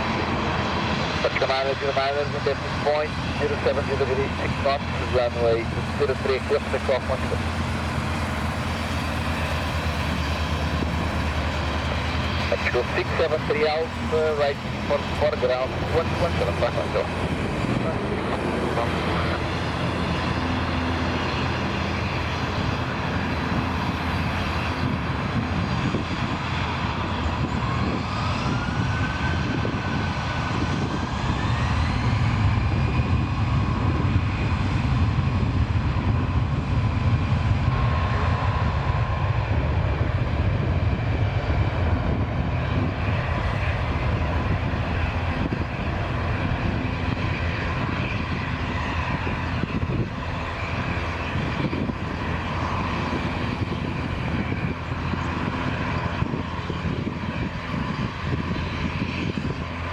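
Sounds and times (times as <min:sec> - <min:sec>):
jet engines spooling up: 0:00.0 - 0:32.8.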